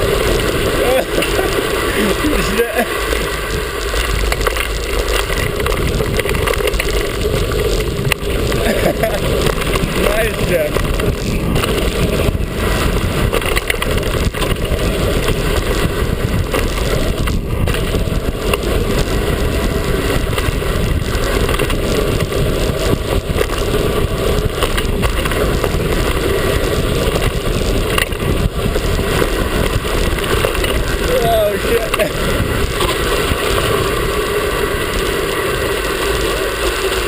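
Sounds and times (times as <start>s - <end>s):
bike tyre and trail noise: 0.0s - 37.0s
wind rushing on microphone: 0.0s - 37.0s
knocks from bike: 10.6s - 18.8s, 20.1s - 30.9s.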